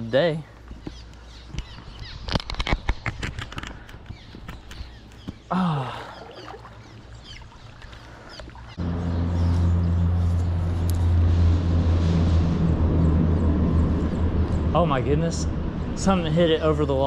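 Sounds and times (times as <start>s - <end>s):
low engine hum: 4.9s - 17.0s.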